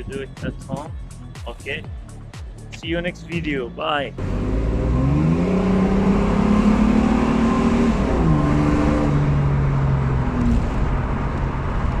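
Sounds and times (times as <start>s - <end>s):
car engine revving: 4.1s - 12.0s.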